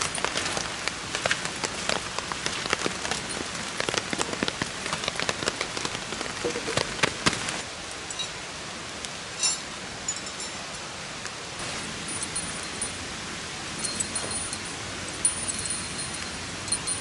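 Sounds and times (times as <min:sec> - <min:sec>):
campfire crackling and popping: 0:00.0 - 0:07.7
steady hiss: 0:00.0 - 0:17.0.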